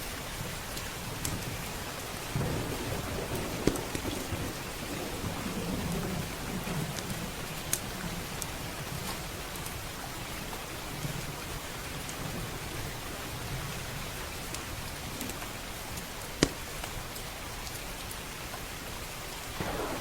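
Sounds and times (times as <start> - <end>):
heavy rain: 0.0 - 20.0
wood fire crackling: 0.6 - 5.4, 6.2 - 12.2, 14.0 - 20.0
thunder rumble: 2.3 - 8.3, 19.6 - 20.0.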